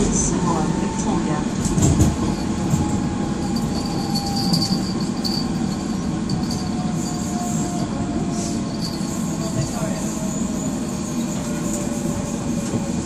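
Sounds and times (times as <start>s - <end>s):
train wheels rumbling: 0.0s - 13.0s
high wheel squeal: 2.4s - 12.6s.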